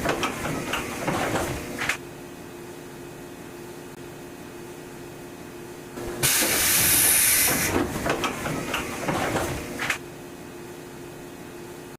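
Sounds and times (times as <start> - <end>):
compressed air hiss: 6.2 - 7.8.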